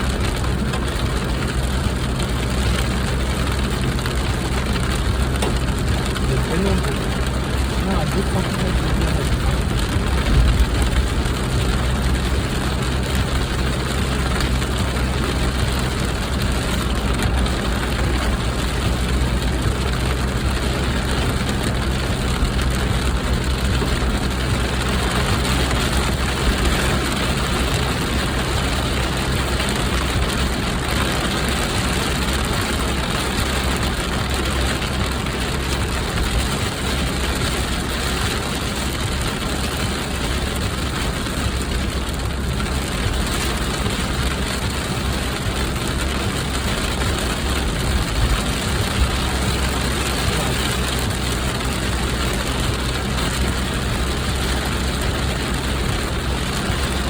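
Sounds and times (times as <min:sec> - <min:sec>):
low engine hum: 0:00.0 - 0:57.0.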